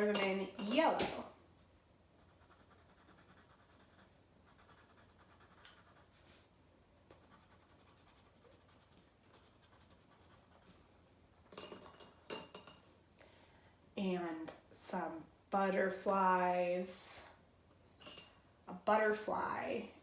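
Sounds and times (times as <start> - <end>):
pencil scribbling on paper: 2.2 - 6.3, 7.1 - 10.7.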